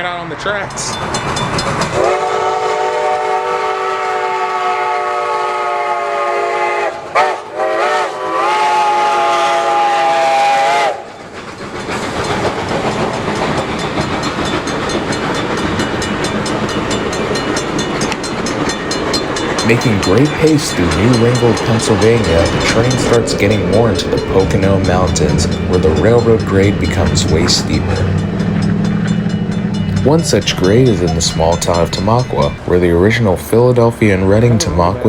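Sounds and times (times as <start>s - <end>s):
train rolling past: 0.0s - 35.0s
steam locomotive chime whistle: 1.9s - 11.2s, 16.3s - 33.4s
fast regular wheel clicking: 11.3s - 33.2s.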